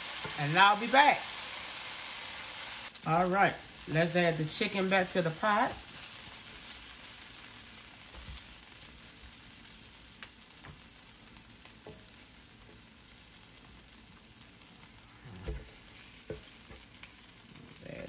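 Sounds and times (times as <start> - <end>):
vegetables sizzling in a skillet: 0.0 - 18.0
wooden spatula scraping and tapping: 11.8 - 12.8, 15.4 - 17.1.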